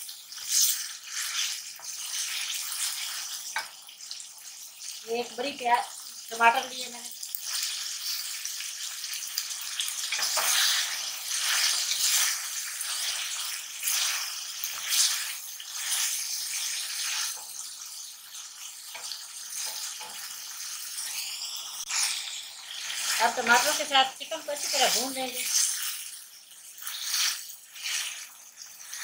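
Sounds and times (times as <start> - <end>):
food sizzling in hot oil: 0.0 - 29.0
wooden spatula scraping pan: 22.8 - 25.8.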